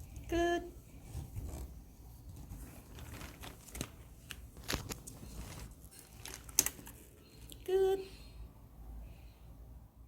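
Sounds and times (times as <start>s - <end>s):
sharp clicks and crinkles: 2.3s - 7.6s.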